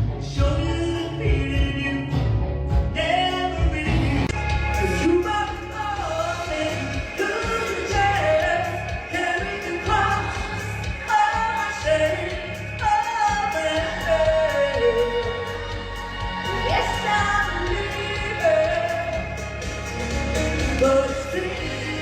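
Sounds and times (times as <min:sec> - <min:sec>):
bass and drums: 0:00.0 - 0:22.0
person singing pop song: 0:00.0 - 0:22.0.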